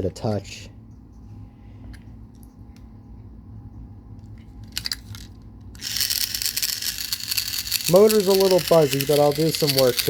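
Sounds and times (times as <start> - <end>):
toy train motor buzzing rattle: 4.6 - 10.0.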